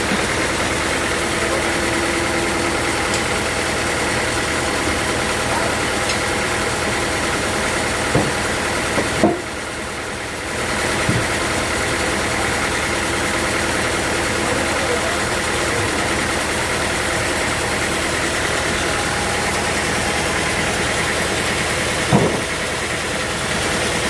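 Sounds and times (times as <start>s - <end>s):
sawmill machinery running: 0.0s - 24.0s
knocks: 22.1s - 22.5s.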